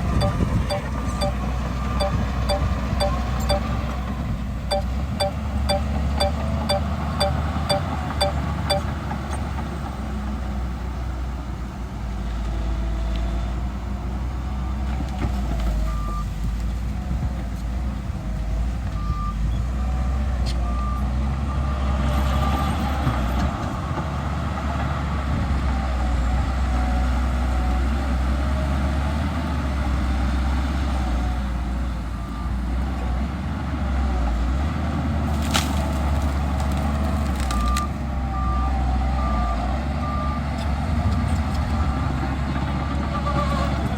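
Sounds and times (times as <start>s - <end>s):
reversing alarm beeping: 0.1s - 3.8s, 4.7s - 8.9s.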